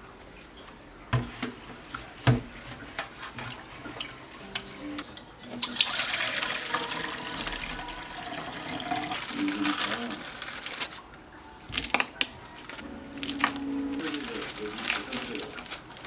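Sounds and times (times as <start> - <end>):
tap water running: 1.1 - 10.9.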